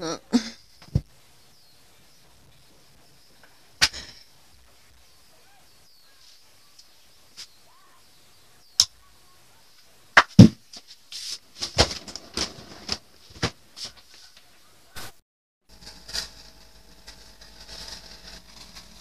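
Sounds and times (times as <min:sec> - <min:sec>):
heavy thump: 0:10.2 - 0:10.6
rustling: 0:10.2 - 0:14.5.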